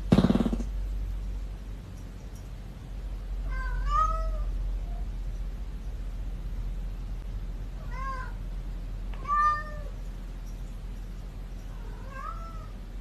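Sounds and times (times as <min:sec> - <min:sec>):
steady low hum: 0:00.0 - 0:13.0
cat meowing: 0:03.4 - 0:04.5, 0:07.8 - 0:08.4, 0:09.2 - 0:10.0, 0:11.7 - 0:12.8.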